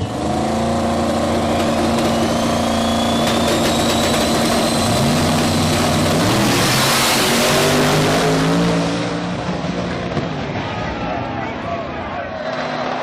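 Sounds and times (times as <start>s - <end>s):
car engine running and revving: 0.0s - 10.2s.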